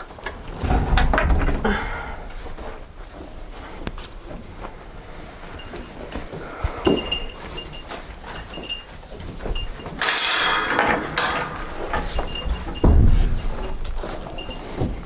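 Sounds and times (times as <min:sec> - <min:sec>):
heavy thump: 0:00.3 - 0:05.1, 0:10.5 - 0:14.2
high clinks: 0:05.3 - 0:15.0.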